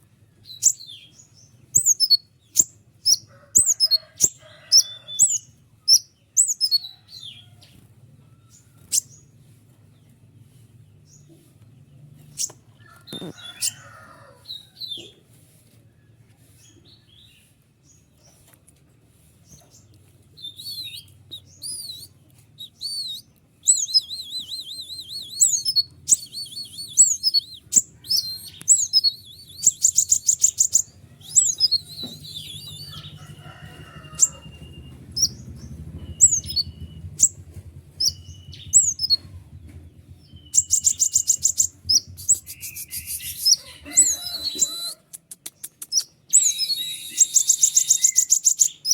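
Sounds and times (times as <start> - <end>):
songbird twittering song: 0.0 - 9.4, 10.0 - 15.2, 19.4 - 48.9
short flat whistles: 42.2 - 43.6, 45.6 - 48.3.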